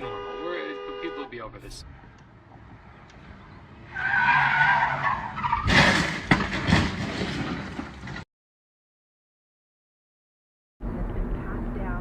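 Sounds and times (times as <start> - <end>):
car tyres squealing: 3.5 - 7.2
crash bangs and clatter: 5.6 - 8.2.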